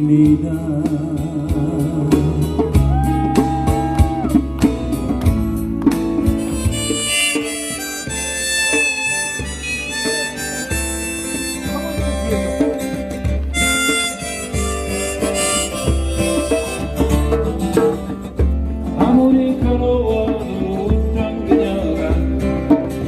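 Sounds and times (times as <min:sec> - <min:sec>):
bass line: 0:00.0 - 0:22.4
strummed acoustic guitar: 0:04.4 - 0:23.0
harmonica melody: 0:06.3 - 0:17.6.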